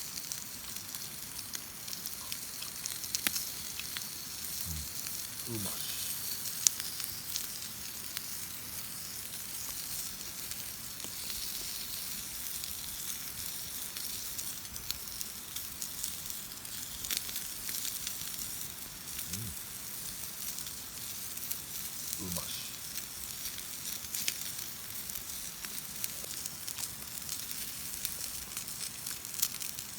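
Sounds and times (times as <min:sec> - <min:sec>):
fire crackling: 0:00.0 - 0:29.9
food sizzling over fire: 0:00.0 - 0:29.9.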